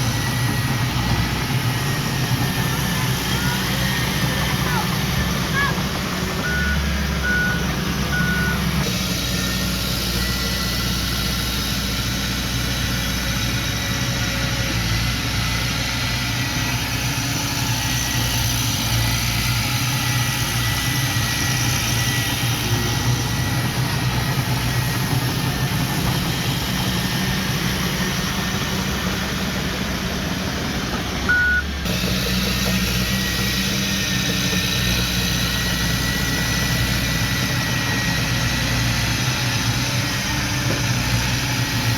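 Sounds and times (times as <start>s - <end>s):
heavy machinery diesel engines: 0.0s - 41.9s
reversing alarm beep: 6.4s - 8.8s, 31.3s - 31.7s.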